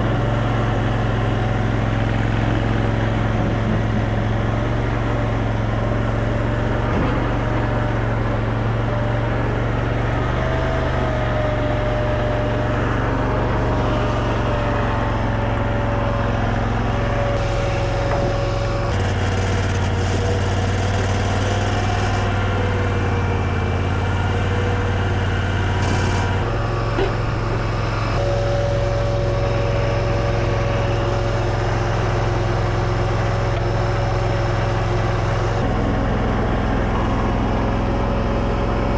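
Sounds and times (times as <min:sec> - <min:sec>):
skid steer engine running: 0:00.0 - 0:38.9
wavering high whine: 0:13.7 - 0:32.1.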